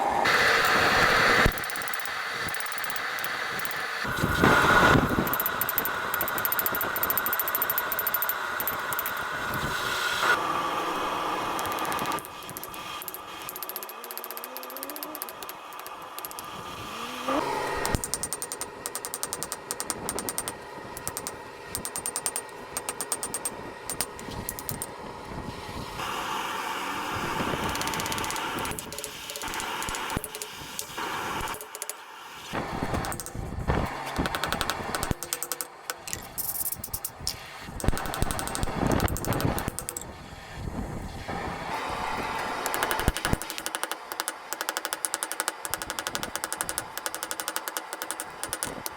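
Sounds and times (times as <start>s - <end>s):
machinery running: 0.0s - 24.9s
rapid knocking and ticking: 17.8s - 24.9s, 34.2s - 36.2s, 37.8s - 40.0s, 42.7s - 48.9s.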